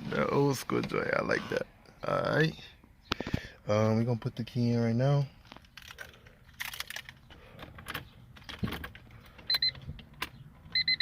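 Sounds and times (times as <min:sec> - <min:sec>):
short electronic beeps: 0:09.5 - 0:09.8, 0:10.7 - 0:11.0.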